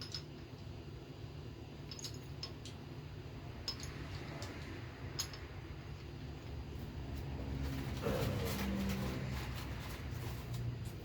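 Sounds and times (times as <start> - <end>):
metal engine parts clinking: 0.0 - 0.7, 1.8 - 2.9, 3.5 - 6.1
steady low hum: 0.0 - 11.0.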